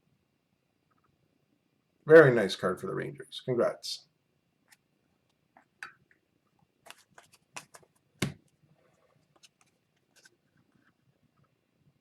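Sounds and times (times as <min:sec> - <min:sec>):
cards clicking and rustling: 0:06.9 - 0:08.4
thump on tabletop: 0:08.2 - 0:08.4.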